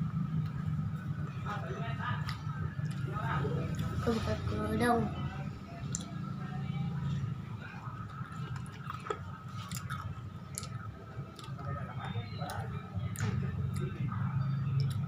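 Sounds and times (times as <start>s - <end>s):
steady low hum: 0.0s - 15.0s
crunchy crackers being chewed: 8.1s - 14.0s.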